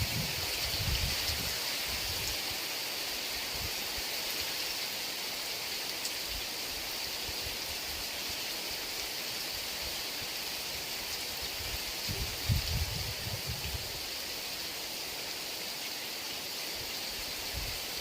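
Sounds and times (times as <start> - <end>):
faint low wind gusts: 0.0 - 4.1, 10.2 - 14.6, 17.1 - 18.0
heavy rain hissing: 0.0 - 18.0.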